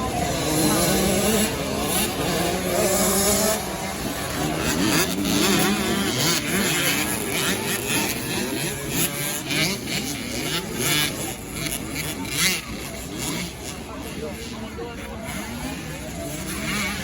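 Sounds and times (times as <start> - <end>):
motocross bikes revving: 0.0 - 17.0.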